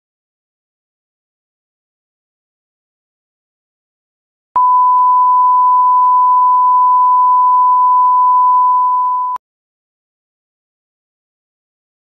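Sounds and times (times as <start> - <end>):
loud steady electronic beep: 4.6 - 9.4.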